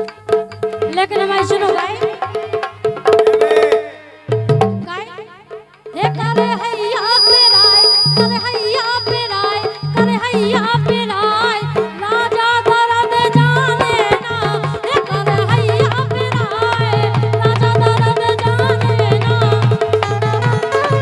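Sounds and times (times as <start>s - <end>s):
hand drum rhythm: 0.0s - 6.6s, 11.8s - 21.0s.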